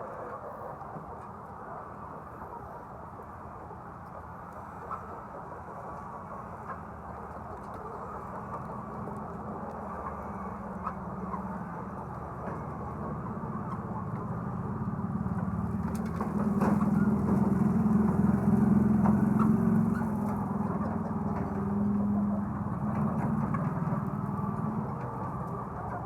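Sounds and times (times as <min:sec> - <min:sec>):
engine humming: 0:06.7 - 0:26.0.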